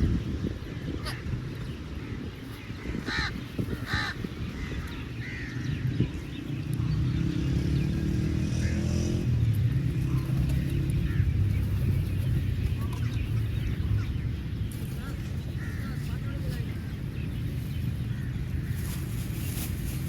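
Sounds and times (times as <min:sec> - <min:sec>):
engine hum: 0:02.8 - 0:20.0
crow cawing: 0:03.0 - 0:05.6.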